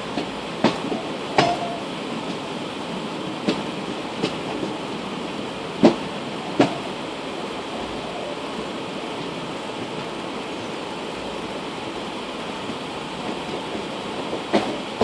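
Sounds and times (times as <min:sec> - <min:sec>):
train wheels and wind rushing: 0:00.0 - 0:15.0
wheels clacking over rail joint: 0:00.1 - 0:02.5, 0:05.8 - 0:07.0, 0:13.2 - 0:15.0.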